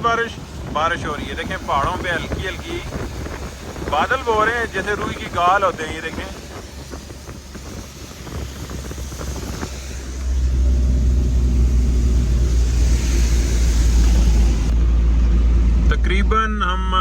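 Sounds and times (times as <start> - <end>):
road and wind rumble: 0.0 - 17.0.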